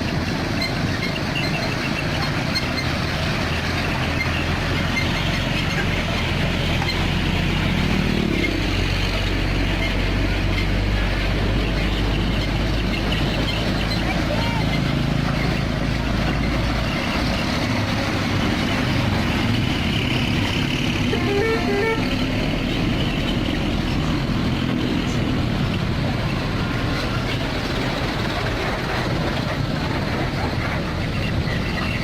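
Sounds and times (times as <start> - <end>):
heavy truck engine running: 0.0 - 32.0
two-pitch horn toots: 21.1 - 22.2.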